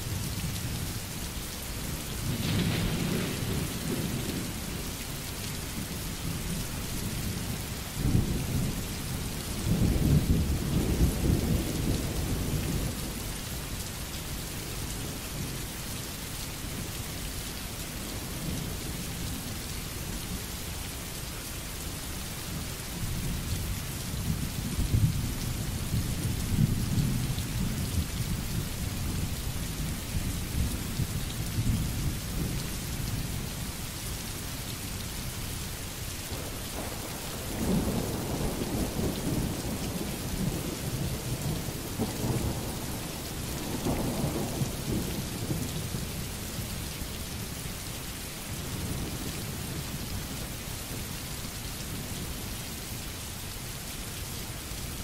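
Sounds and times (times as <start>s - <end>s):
steady rain: 0.0s - 55.0s
thunder rumbling: 2.3s - 4.6s, 36.3s - 45.7s.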